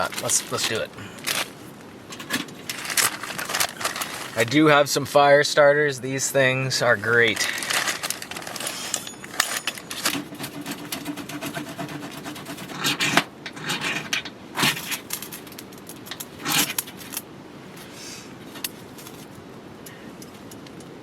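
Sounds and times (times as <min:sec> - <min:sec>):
loud scraping rushes: 0:02.6 - 0:04.6
metallic clinks and knocks: 0:07.8 - 0:10.9.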